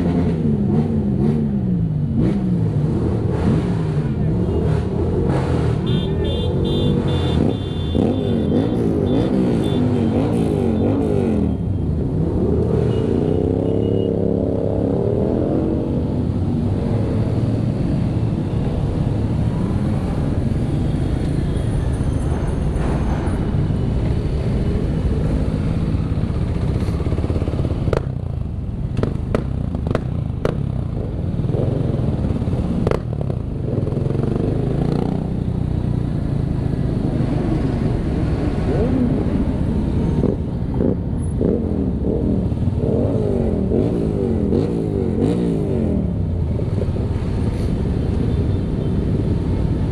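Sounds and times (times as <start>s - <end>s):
motorcycles revving and passing: 0.0s - 49.9s.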